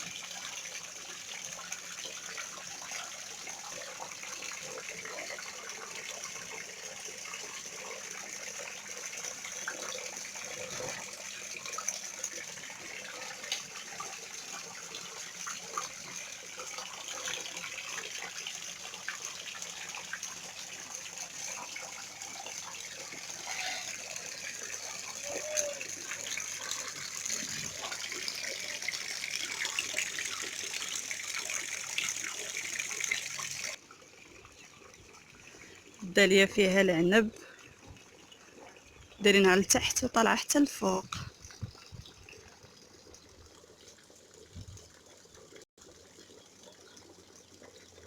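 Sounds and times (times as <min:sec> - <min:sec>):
fountain water splashing: 0:00.0 - 0:37.7.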